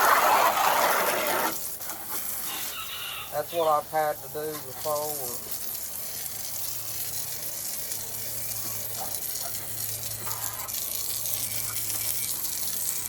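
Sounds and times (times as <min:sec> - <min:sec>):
pressure washer spraying water: 0:00.0 - 0:13.0.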